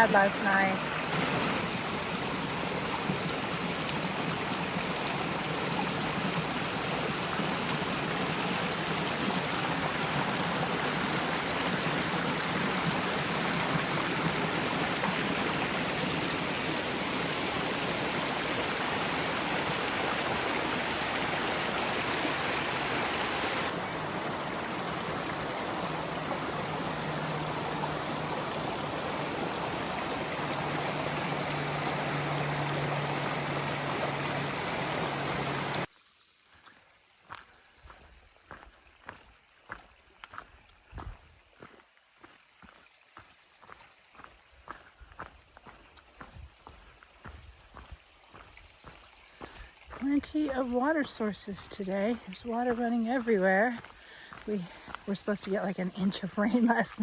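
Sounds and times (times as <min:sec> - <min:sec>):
rushing creek water: 0:00.0 - 0:57.0.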